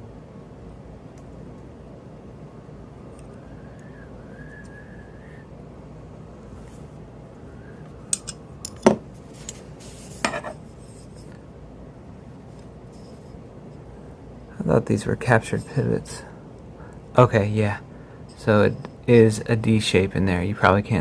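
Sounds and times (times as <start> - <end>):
small metal clicks and clinks: 8.1 - 9.6.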